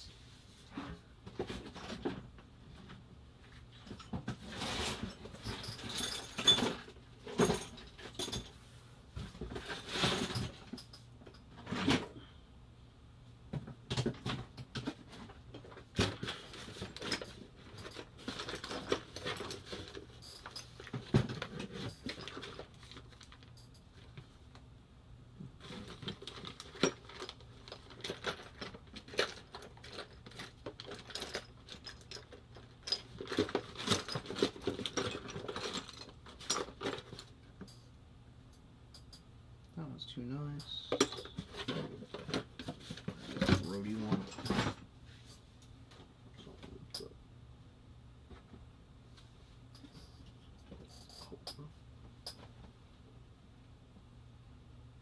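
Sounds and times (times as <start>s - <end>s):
small parts clinking and clattering: 4.8s - 8.6s, 14.0s - 24.2s, 25.6s - 37.9s, 40.6s - 45.4s.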